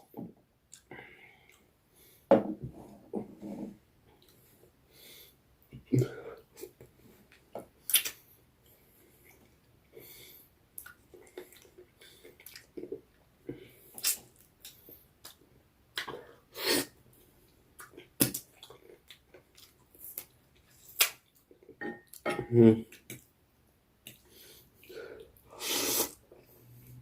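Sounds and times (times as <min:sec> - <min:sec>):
lip smacks: 0:07.8 - 0:08.2, 0:14.0 - 0:15.4, 0:20.9 - 0:21.2
slurps: 0:25.6 - 0:26.2.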